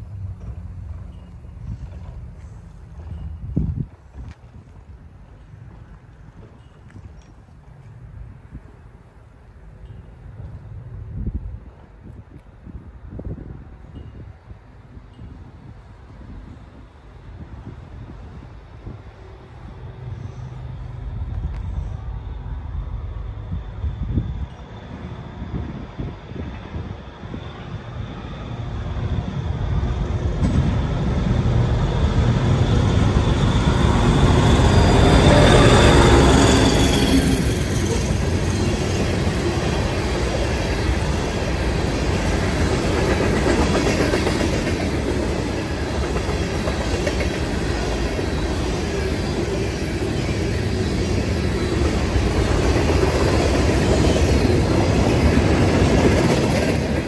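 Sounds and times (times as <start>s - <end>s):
diesel locomotive passing: 0.0s - 57.0s
freight cars rumbling past: 17.2s - 57.0s.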